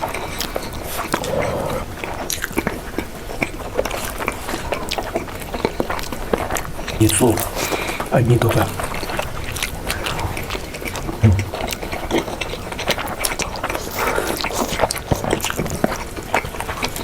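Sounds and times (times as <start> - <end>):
chewing fried chicken crunching: 0.0 - 17.0.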